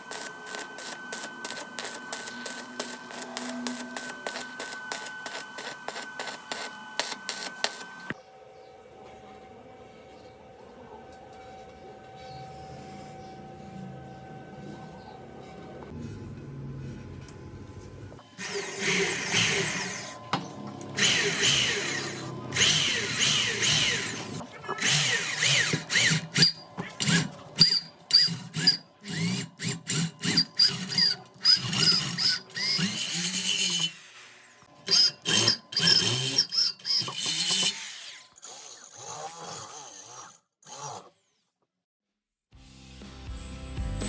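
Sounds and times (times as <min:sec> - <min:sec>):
handheld power tool bursts: 0:00.0 - 0:08.2, 0:18.3 - 0:41.0.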